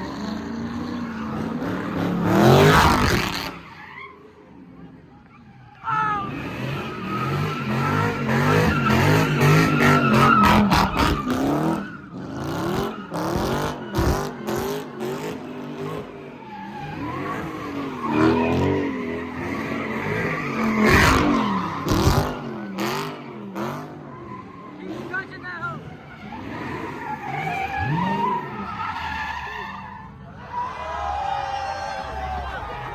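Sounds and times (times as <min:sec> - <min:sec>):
tyres squealing and skidding: 0:00.0 - 0:32.9
car engine revving hard: 0:06.3 - 0:16.2, 0:16.8 - 0:24.2.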